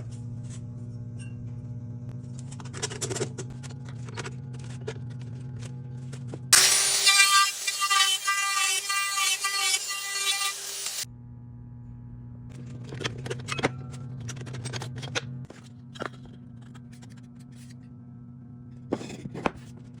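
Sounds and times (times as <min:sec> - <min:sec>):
steady low hum: 0:00.0 - 0:06.6, 0:11.0 - 0:20.0.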